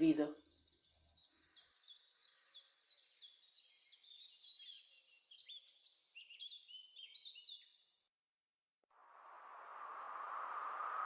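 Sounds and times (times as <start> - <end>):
faint birds chirping: 0.0 - 8.1.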